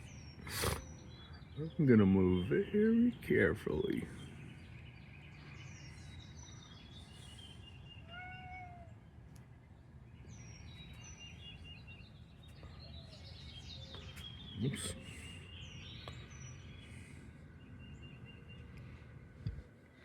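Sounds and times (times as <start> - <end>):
faint bird chirps: 0.0 - 20.0
cat meowing: 8.0 - 9.0.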